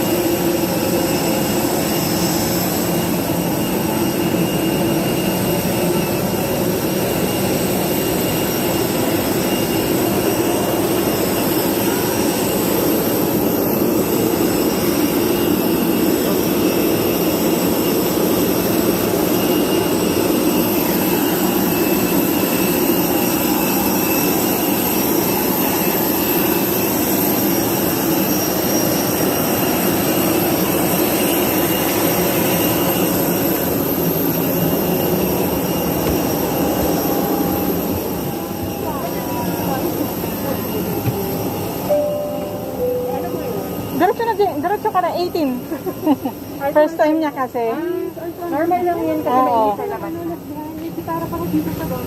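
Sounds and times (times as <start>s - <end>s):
jet aircraft hum and whine: 0.0s - 52.0s.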